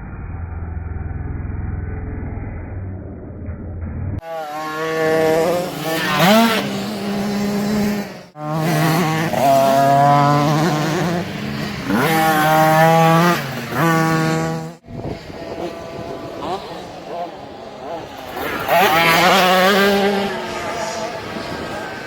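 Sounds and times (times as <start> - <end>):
motocross bike engines revving: 4.2 - 22.0.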